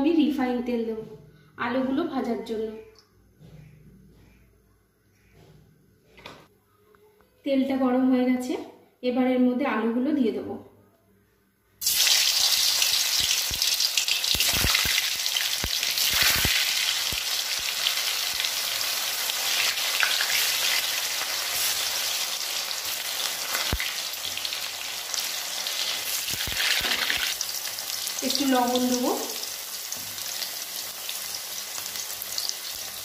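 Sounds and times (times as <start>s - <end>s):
potatoes sizzling in oil: 11.8s - 33.0s.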